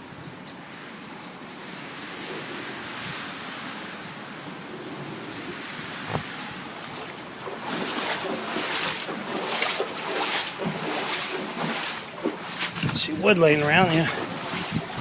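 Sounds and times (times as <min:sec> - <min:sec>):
wind buffeting microphone: 0:04.5 - 0:15.0
floodwater sloshing and splashing: 0:06.1 - 0:15.0.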